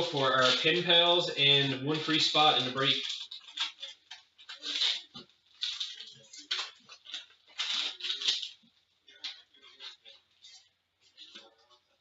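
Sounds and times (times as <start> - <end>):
card packaging rustling and crinkling: 0.0 - 12.0.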